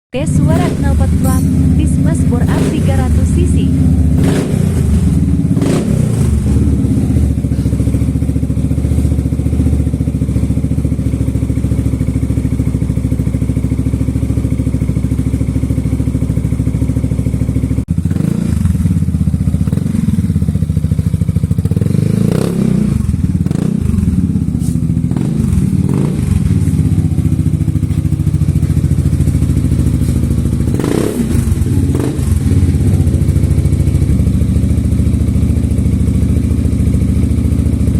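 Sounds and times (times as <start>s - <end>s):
scooter engine idling and revving: 0.2s - 37.9s.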